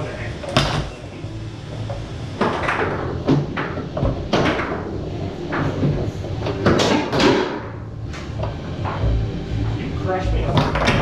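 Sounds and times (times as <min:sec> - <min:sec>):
foosball knocks and clacks: 0:01.9 - 0:07.8, 0:10.5 - 0:11.0.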